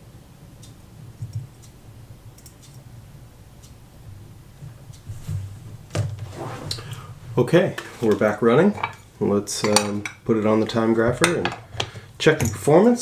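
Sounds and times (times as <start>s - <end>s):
low steady hum: 0.0s - 13.0s
faint sharp clicks: 2.4s - 2.9s.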